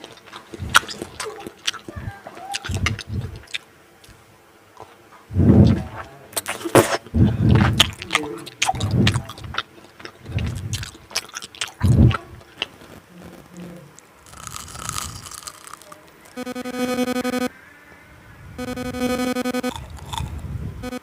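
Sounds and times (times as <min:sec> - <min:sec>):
food being bitten and chewed: 0:00.0 - 0:04.2, 0:04.8 - 0:16.4, 0:19.6 - 0:20.5.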